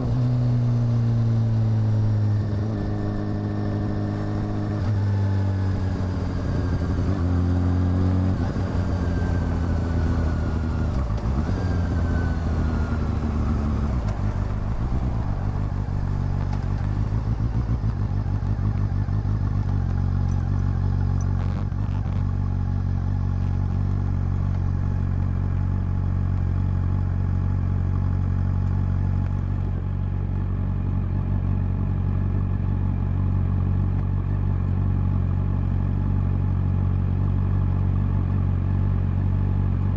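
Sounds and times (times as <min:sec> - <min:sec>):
motorcycle engine downshifting: 0:00.0 - 0:26.2
motorcycle engine idling: 0:03.8 - 0:39.9.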